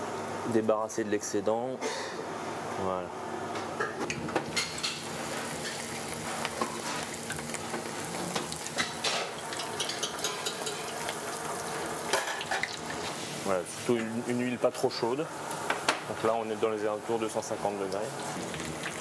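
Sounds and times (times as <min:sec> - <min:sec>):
cabbage frying in oil: 0:04.4 - 0:13.9, 0:17.0 - 0:19.0.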